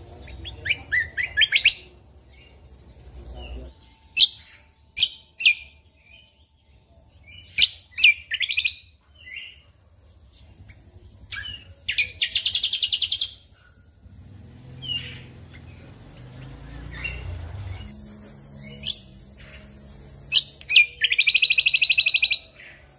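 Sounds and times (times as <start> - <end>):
bird chirps and whistles: 20.3 - 22.6.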